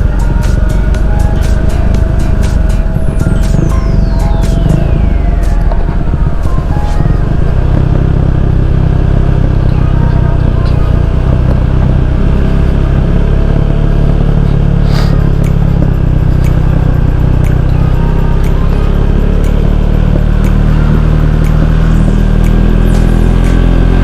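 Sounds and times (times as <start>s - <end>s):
wind rumble on microphone: 0.0s - 17.4s
motorcycle engine running: 0.0s - 24.0s.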